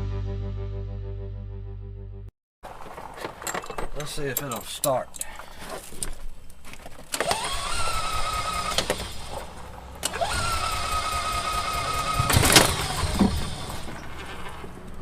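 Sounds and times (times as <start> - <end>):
starter motor whine: 7.2 - 15.0.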